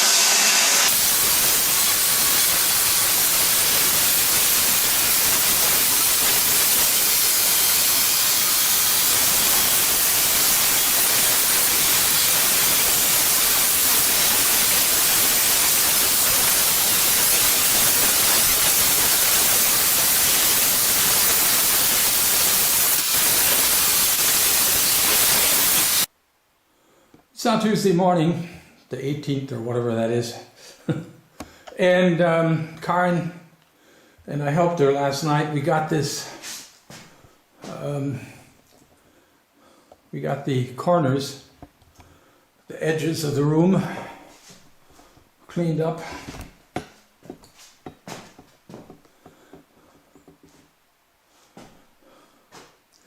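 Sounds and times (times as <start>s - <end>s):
floor sander grinding wood: 0.0s - 2.3s.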